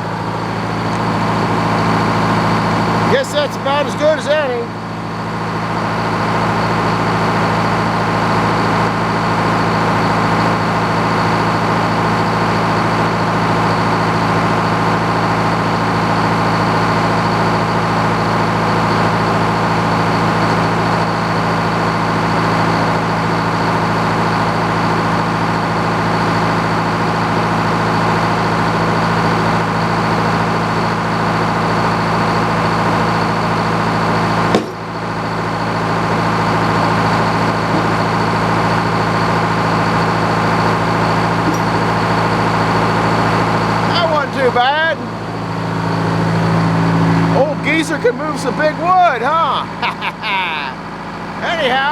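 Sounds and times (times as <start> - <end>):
engine drone: 0.0 - 51.9.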